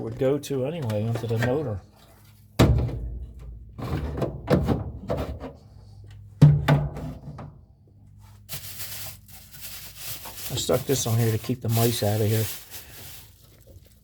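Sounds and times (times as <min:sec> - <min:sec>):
knocks and clunks: 0:02.6 - 0:07.6.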